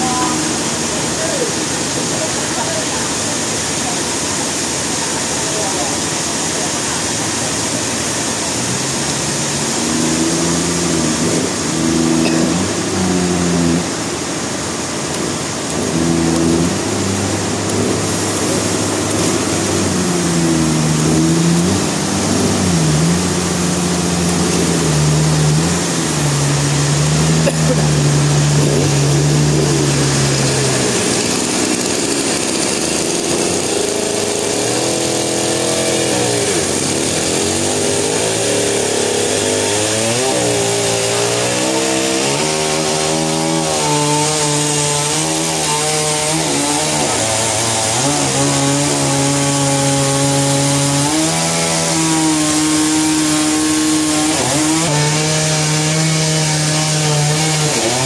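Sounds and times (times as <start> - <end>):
sawmill saw cutting log: 0.0 - 58.0.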